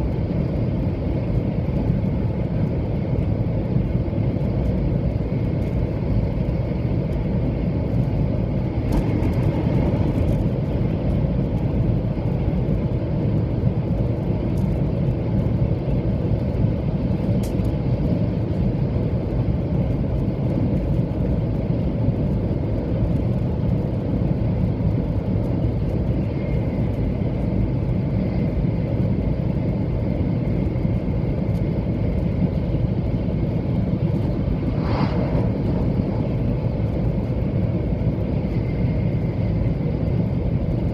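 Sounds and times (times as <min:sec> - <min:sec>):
train rumble inside cabin: 0:00.0 - 0:40.9
faint thin whine: 0:29.6 - 0:40.9.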